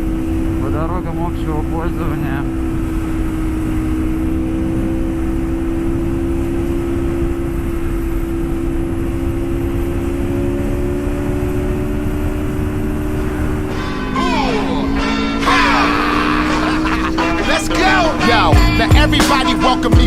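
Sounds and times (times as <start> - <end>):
motorcycle engine cruising: 0.0 - 20.0
wind rushing over microphone: 2.4 - 13.8.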